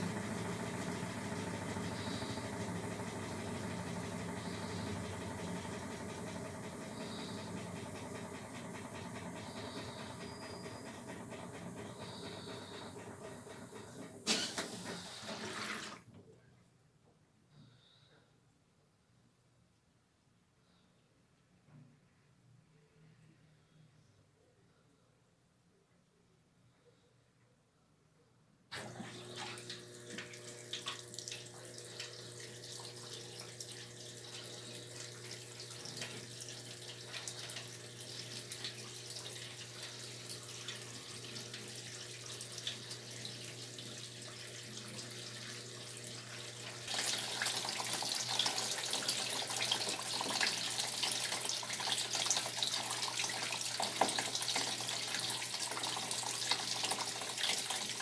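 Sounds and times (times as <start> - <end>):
water running into washing machine: 0.0 - 16.0, 28.7 - 58.0.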